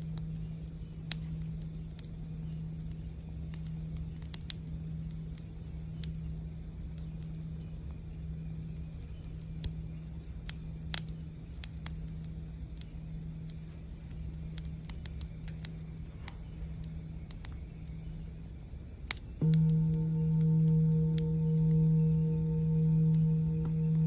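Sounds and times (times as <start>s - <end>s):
campfire crackling and popping: 0.0s - 24.0s
low steady rumble: 0.0s - 24.0s
singing bowl ringing: 19.4s - 24.0s.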